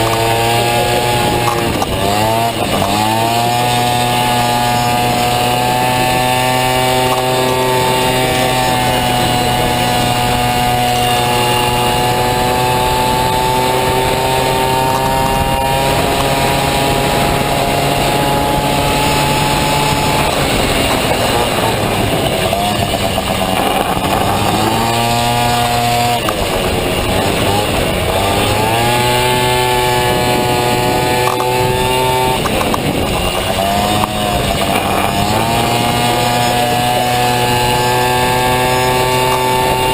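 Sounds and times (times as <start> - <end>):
scooter engine at high revs: 0.0 - 39.9.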